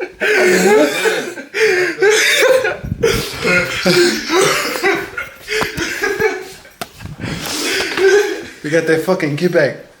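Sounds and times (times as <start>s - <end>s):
people laughing loudly: 0.0s - 6.7s.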